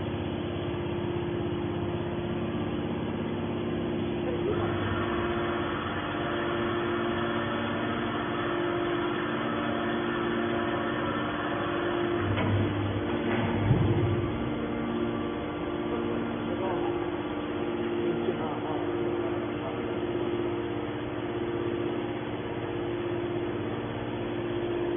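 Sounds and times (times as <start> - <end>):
machine motor hum: 0.0 - 24.9.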